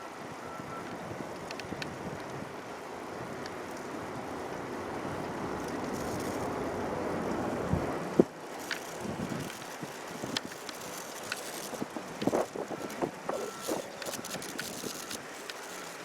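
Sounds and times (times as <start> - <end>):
bicycle tyre and wind noise: 0.0 - 16.0
light clicks and rattles: 8.5 - 16.0.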